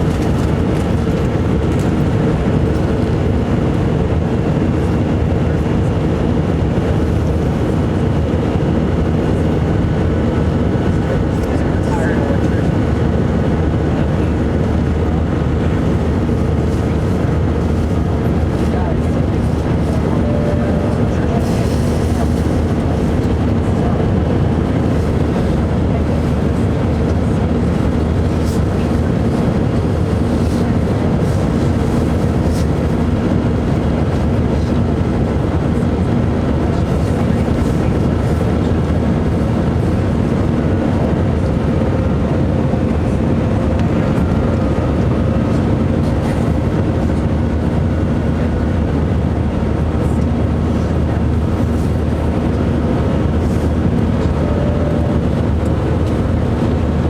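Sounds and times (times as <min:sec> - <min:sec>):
jet engines droning: 0:00.0 - 0:57.0
low rumble: 0:14.2 - 0:34.8.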